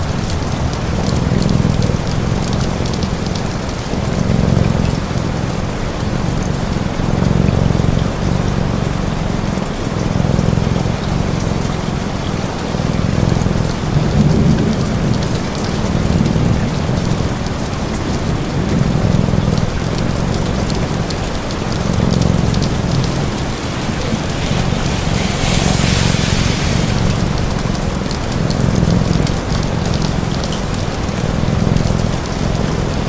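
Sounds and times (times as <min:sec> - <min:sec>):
steady rain: 0:00.0 - 0:33.0
cat purring: 0:00.8 - 0:33.0
fire crackling: 0:09.9 - 0:33.0.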